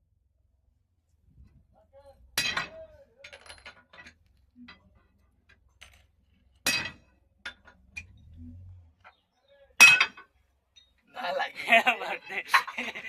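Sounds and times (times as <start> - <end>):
sharp metallic knocks: 6.6 - 8.2, 9.8 - 10.3.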